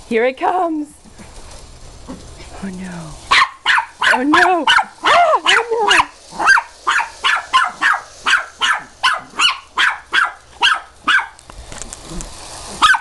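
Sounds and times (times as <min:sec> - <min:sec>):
puppy barking: 0:03.3 - 0:11.4, 0:12.8 - 0:13.0.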